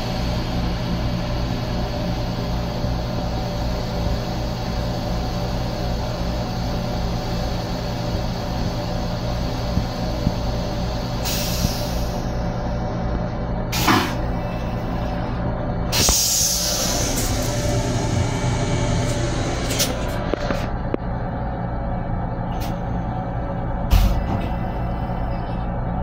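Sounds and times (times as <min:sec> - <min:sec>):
electric railcar hum and rumble: 0:00.0 - 0:26.0
air hiss: 0:10.3 - 0:12.3, 0:13.8 - 0:14.2, 0:15.9 - 0:19.8.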